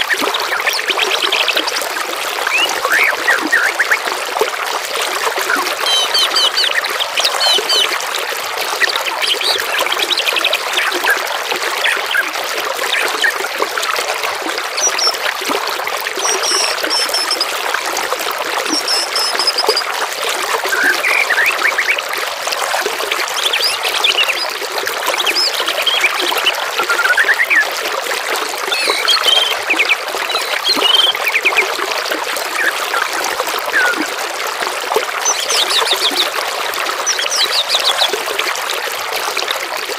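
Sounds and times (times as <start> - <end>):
water trickling: 0.0 - 39.9
songbirds chirping and singing: 28.7 - 31.6.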